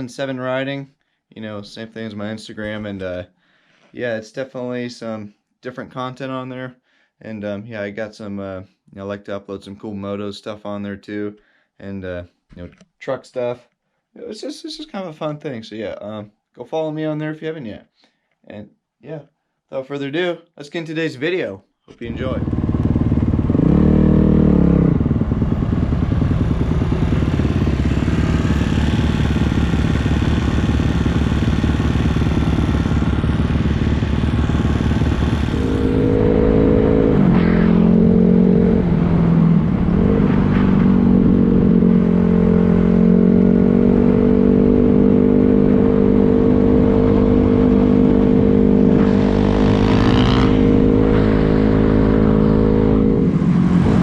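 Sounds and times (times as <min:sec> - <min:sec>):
dirt bike engine revving: 0:22.0 - 0:54.0.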